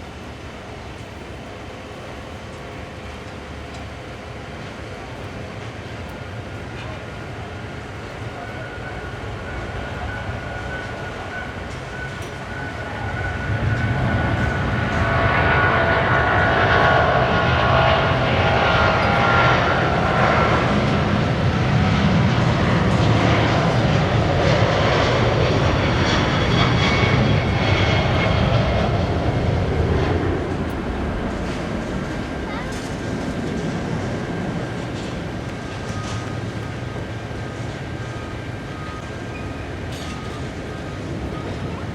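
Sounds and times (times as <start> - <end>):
jet engines roaring with whine: 0.0 - 41.9.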